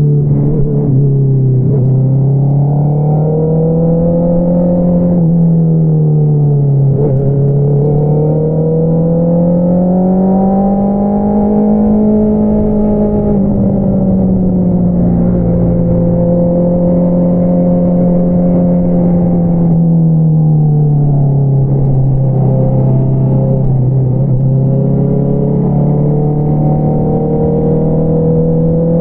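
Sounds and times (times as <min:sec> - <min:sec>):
motorcycle engine revving: 0:06.8 - 0:20.2, 0:21.4 - 0:29.0.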